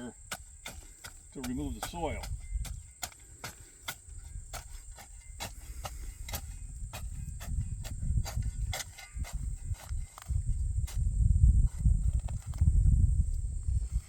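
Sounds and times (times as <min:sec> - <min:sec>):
soil crunching clicks: 0:00.0 - 0:11.1, 0:11.7 - 0:12.8
low rustling rumble: 0:00.6 - 0:14.0.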